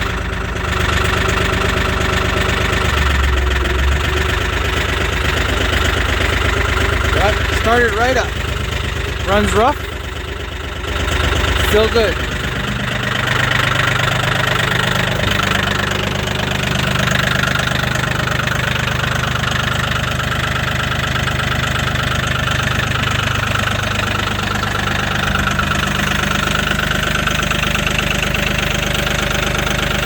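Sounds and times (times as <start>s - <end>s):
tractor diesel engine idling: 0.0s - 30.0s.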